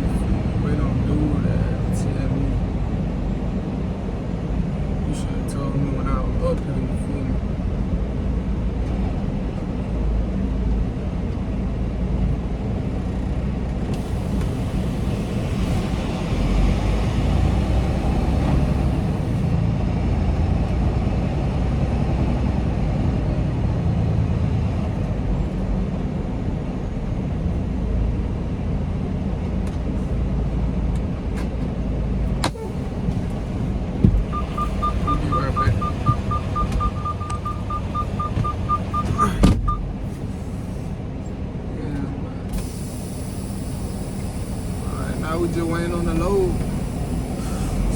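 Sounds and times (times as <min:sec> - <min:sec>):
diesel truck engine rumbling: 0:00.0 - 0:47.9
fast high-pitched beeping: 0:34.3 - 0:39.8
loud hiss: 0:42.5 - 0:47.9.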